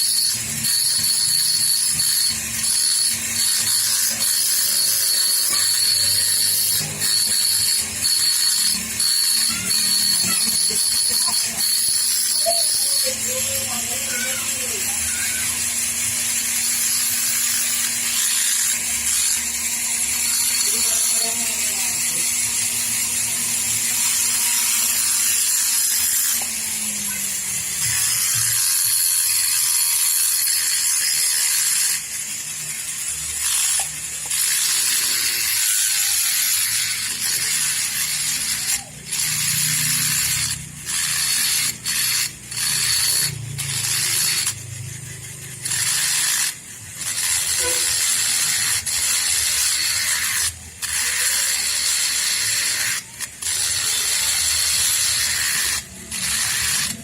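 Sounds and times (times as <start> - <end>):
tool scraping metal: 0.0 - 57.0.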